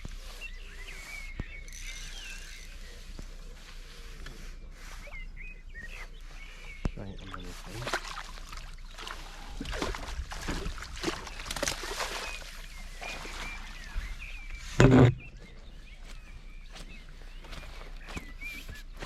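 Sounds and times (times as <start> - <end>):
birds chirping faintly: 0.0 - 19.0
water splashing: 7.2 - 14.0
rustling and knocking: 14.7 - 15.4.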